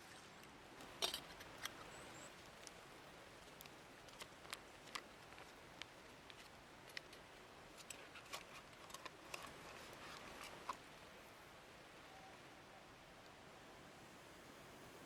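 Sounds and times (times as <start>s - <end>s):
soft steady hiss: 0.0s - 15.0s
sharp clicks and crackles: 3.4s - 10.8s.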